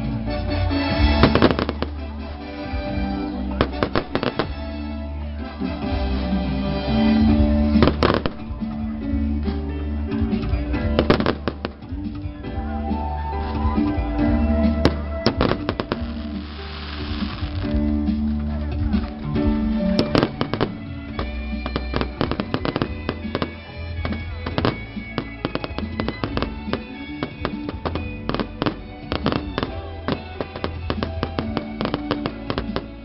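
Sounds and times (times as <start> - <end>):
music with bass line: 0.0 - 33.0
firecrackers cracking and popping: 1.0 - 2.8, 3.5 - 4.9, 7.8 - 8.6, 10.9 - 12.2, 14.7 - 33.0.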